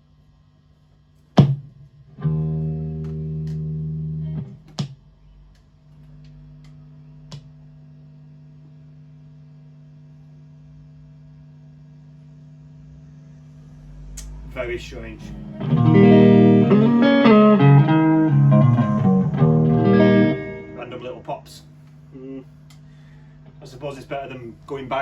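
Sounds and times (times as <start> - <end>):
amp hum: 0.0 - 25.0
guitar amp pops: 4.4 - 5.0
held electric guitar note: 14.0 - 21.5.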